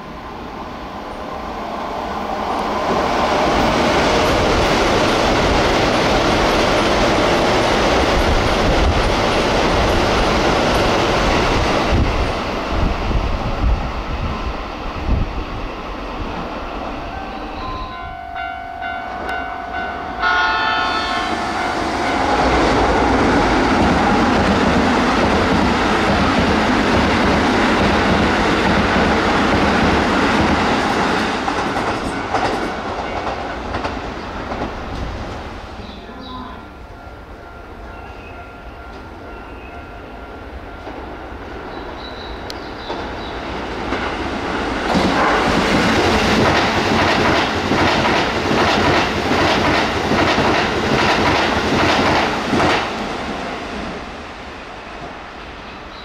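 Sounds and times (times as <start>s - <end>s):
electric train passing: 0.0s - 56.0s
train horn: 17.0s - 23.0s.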